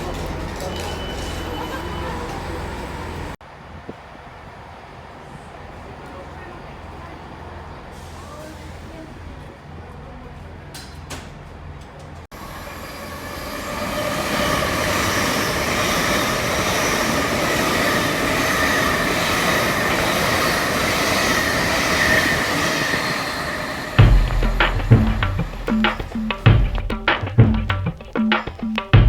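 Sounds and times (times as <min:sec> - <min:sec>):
train rushing on rails: 0:00.0 - 0:09.9, 0:11.3 - 0:29.0
high whining and squealing: 0:12.4 - 0:26.4.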